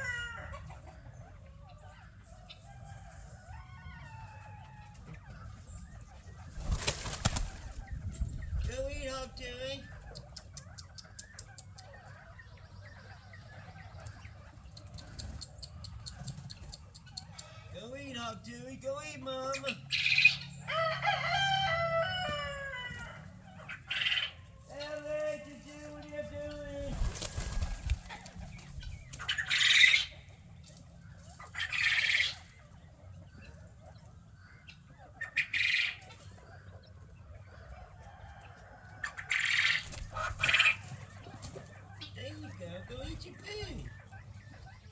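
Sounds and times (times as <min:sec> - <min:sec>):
chickens clucking: 0:00.0 - 0:44.9
chickens flapping wings: 0:06.4 - 0:08.0, 0:26.6 - 0:29.4, 0:39.6 - 0:41.7
sharp ticks: 0:10.1 - 0:11.9, 0:14.0 - 0:17.5.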